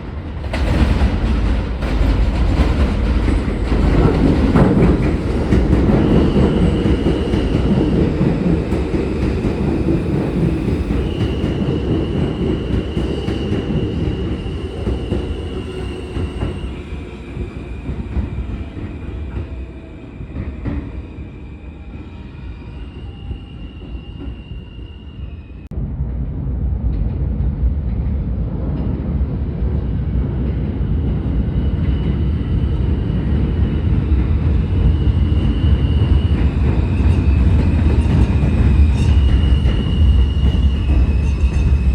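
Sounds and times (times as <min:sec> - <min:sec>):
train rumbling on rails: 0:00.0 - 0:41.9
wheel squeal: 0:35.4 - 0:41.9.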